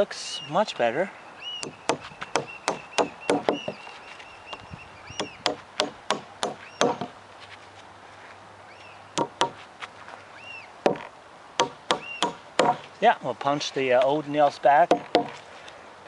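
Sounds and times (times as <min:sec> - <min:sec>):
hammer striking nails into wood: 0:01.6 - 0:03.8, 0:05.2 - 0:07.1, 0:09.2 - 0:09.6, 0:10.9 - 0:12.9, 0:14.9 - 0:15.4.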